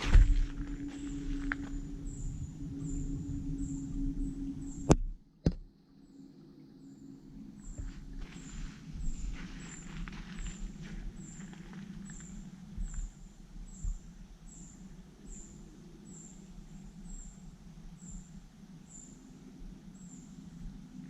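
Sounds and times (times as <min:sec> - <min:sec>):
footsteps: 0:00.0 - 0:02.0, 0:07.8 - 0:12.3
steady low rumble: 0:00.0 - 0:21.0.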